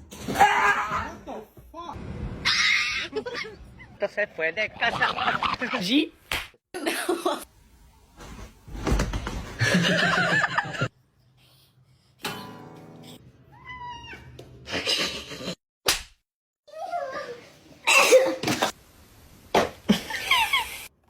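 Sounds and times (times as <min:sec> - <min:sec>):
cat meowing: 0:13.5 - 0:14.4.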